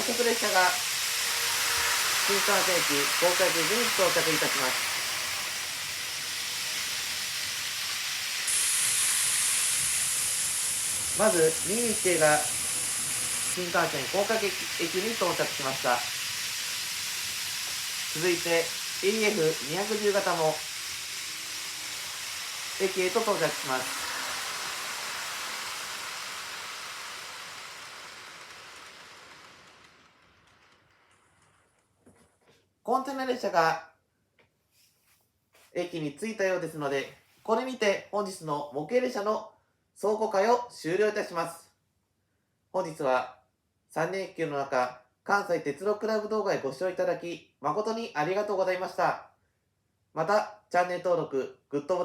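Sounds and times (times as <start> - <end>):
model trains hissing: 0.0 - 31.3.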